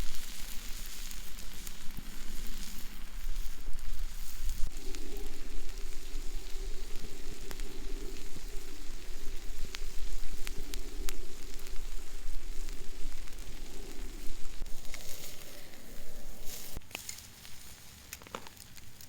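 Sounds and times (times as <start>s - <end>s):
steak sizzling on hot stone: 0.0s - 19.0s.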